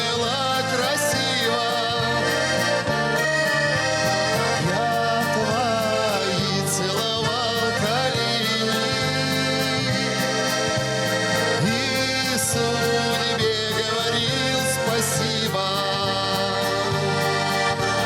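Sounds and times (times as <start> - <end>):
accordion playing: 0.0 - 18.0
bass line: 0.0 - 18.0.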